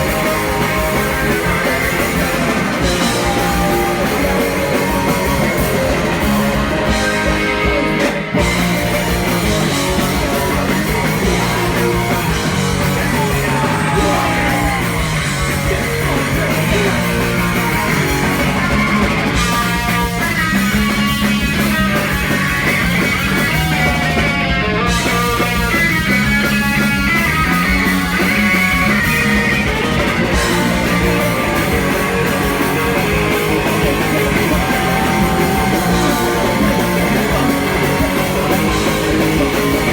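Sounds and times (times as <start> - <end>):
person singing: 0.0 - 8.5, 10.0 - 18.5, 30.5 - 39.9
punk rock band playing live: 0.0 - 39.9.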